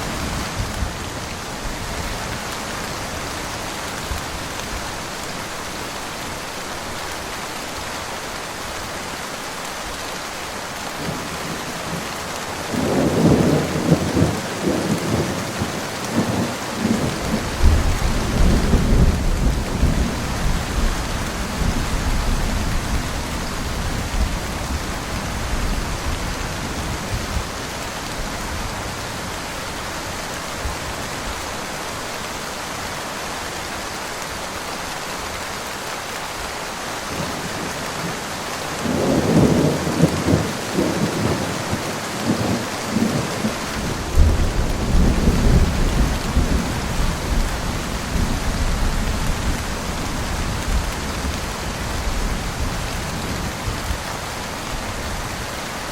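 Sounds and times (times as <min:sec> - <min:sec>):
steady rain: 0:00.0 - 0:55.9
thunder rumbling: 0:38.8 - 0:54.0.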